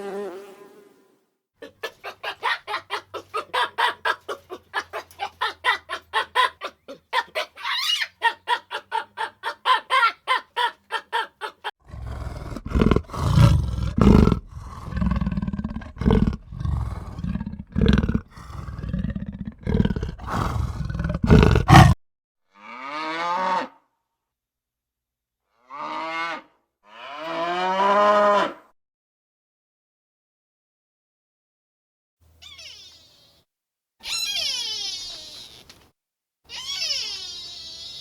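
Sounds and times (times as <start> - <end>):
big cat growling and roaring: 11.8 - 22.0.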